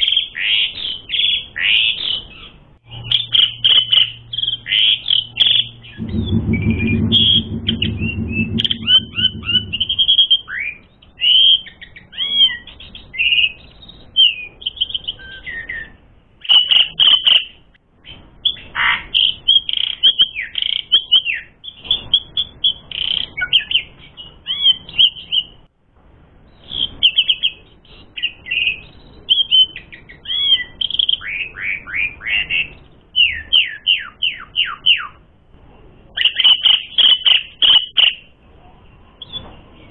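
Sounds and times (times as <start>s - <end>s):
low buzzing hum: 2.8s - 10.3s.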